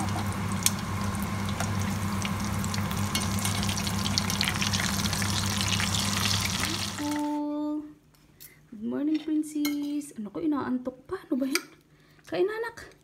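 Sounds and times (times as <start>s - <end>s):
patties sizzling in hot oil: 0.0s - 7.3s.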